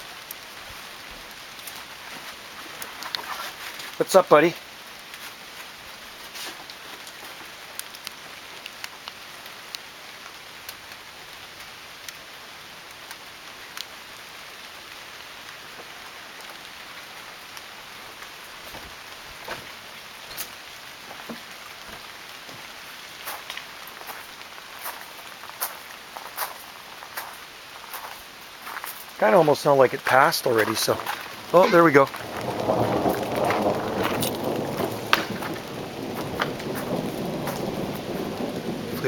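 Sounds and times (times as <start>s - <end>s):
rain hissing: 0.0s - 39.0s
raindrops ticking on surfaces: 0.0s - 39.0s.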